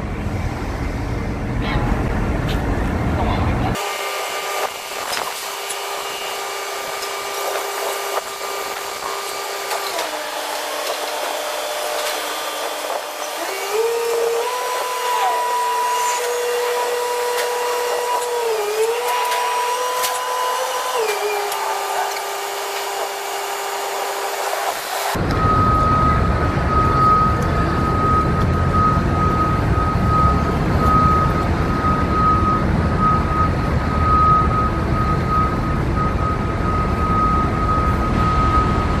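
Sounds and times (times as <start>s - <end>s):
hoist motor whining: 3.8s - 25.9s.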